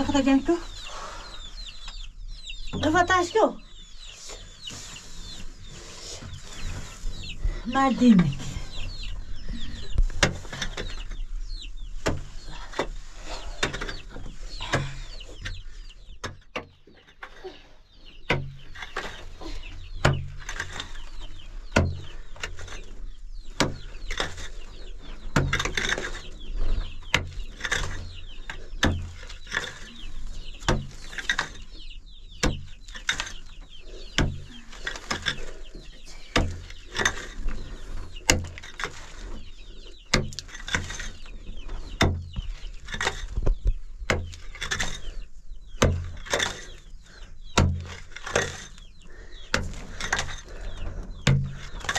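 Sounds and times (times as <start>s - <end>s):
chickens clucking: 0.0s - 51.9s
sharp knocks and clicks: 18.2s - 19.2s.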